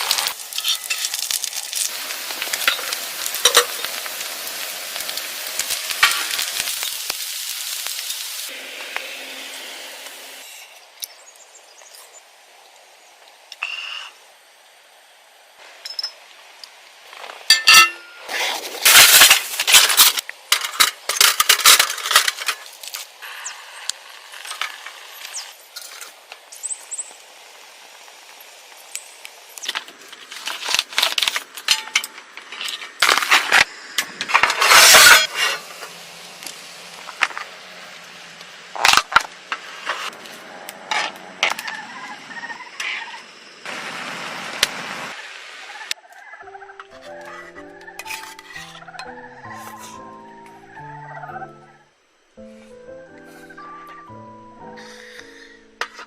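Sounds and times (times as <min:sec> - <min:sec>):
cookware and utensils clinking: 0:02.5 - 0:03.9, 0:17.5 - 0:18.3, 0:46.9 - 0:50.0.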